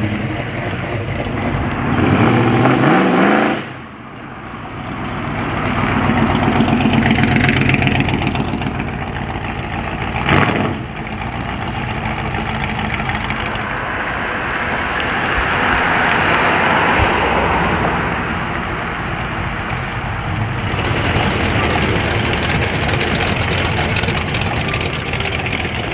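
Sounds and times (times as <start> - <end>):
car engine running: 0.0 - 2.4, 4.4 - 25.9.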